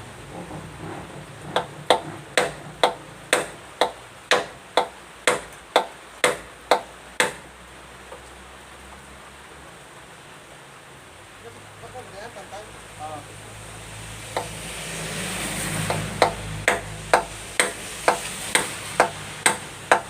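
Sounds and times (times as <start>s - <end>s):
hammer striking nail into wood: 1.6s - 7.5s, 14.4s - 14.6s, 15.9s - 20.0s.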